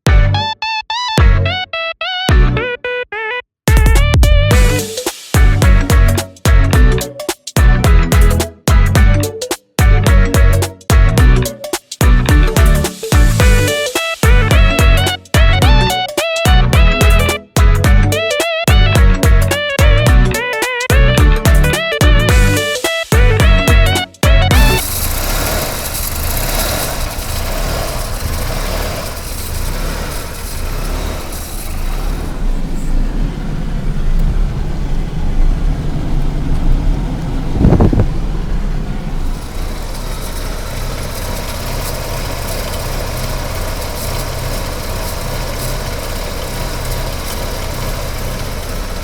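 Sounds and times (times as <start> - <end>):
rotary engine idling unevenly: 4.5 - 16.0, 21.1 - 49.0
brief low thump: 37.5 - 38.5.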